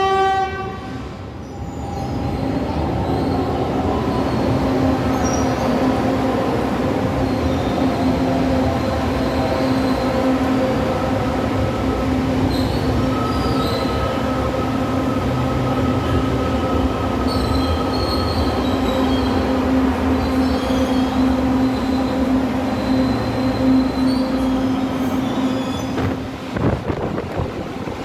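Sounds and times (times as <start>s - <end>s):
high-pitched wheel squeals: 12.5s - 14.5s, 20.2s - 26.2s.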